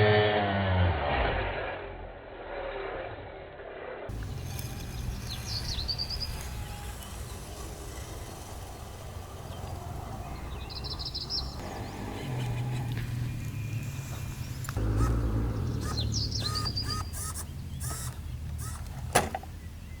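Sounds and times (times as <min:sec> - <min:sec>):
steady low rumble: 0:01.7 - 0:18.5
birds chirping: 0:04.1 - 0:20.0.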